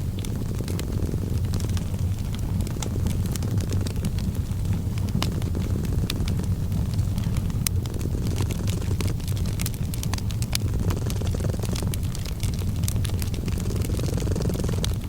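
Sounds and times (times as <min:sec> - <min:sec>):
cat purring: 0:00.0 - 0:15.0
fireplace crackling and popping: 0:00.0 - 0:15.0.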